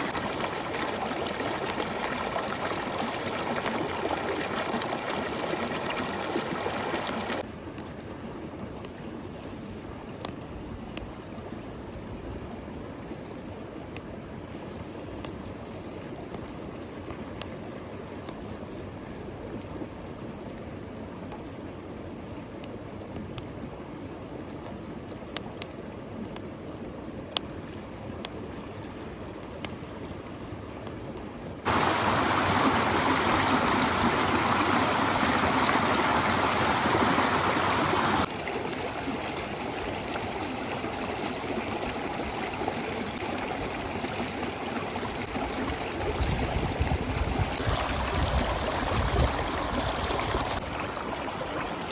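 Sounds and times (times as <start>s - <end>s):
river water rushing: 0.0s - 7.4s, 31.7s - 46.1s, 47.5s - 51.9s.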